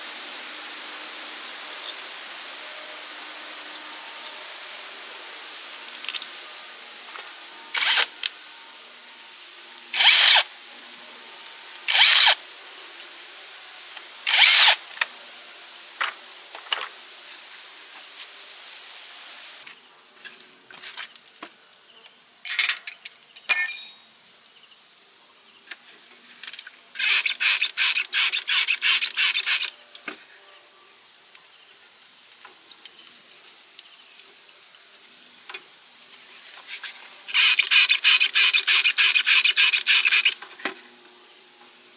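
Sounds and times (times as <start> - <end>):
hand tool scraping strokes: 10.0 - 10.4, 11.9 - 12.4, 27.0 - 29.7, 36.7 - 40.4.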